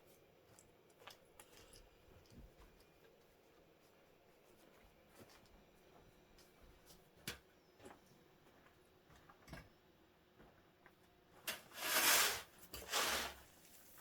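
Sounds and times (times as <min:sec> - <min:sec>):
scraping strokes: 0:11.5 - 0:14.0.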